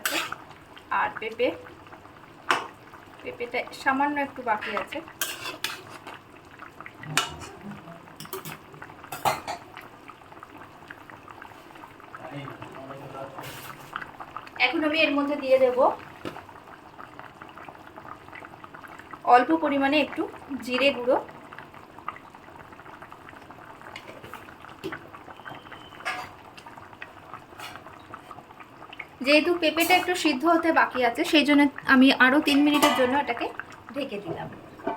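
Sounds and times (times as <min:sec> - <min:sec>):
spoon scraping cooking pot: 0:00.0 - 0:00.4, 0:04.6 - 0:06.2, 0:27.5 - 0:27.9
stew bubbling in a pot: 0:00.0 - 0:34.9.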